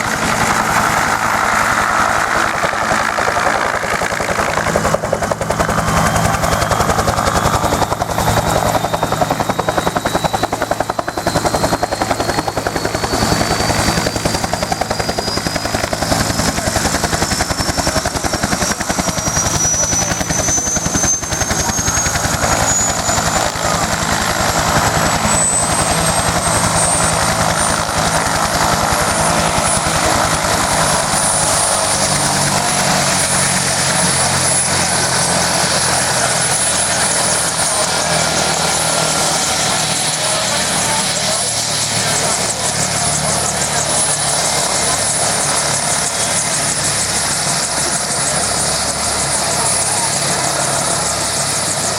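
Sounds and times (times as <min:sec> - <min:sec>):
helicopter rotor: 0:00.0 - 0:51.9
helicopter turbine whine: 0:00.0 - 0:51.9.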